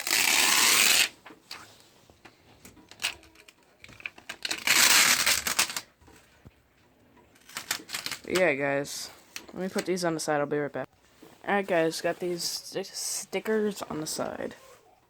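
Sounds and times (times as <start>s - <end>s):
packaging crinkling and tearing: 4.0s - 5.9s, 7.4s - 8.3s.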